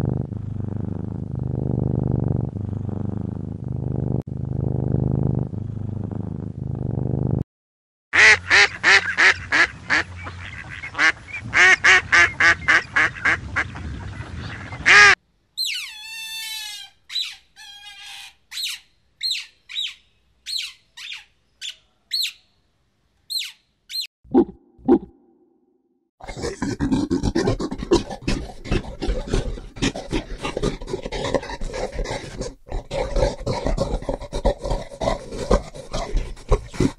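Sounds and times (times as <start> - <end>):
duck quacking: 8.2 - 13.7
sea otter squealing and chirping: 15.6 - 22.4, 23.3 - 24.1.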